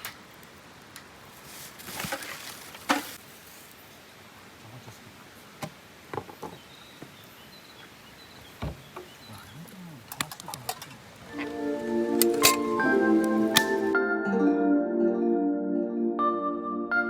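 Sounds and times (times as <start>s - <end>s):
music: 11.3s - 17.0s.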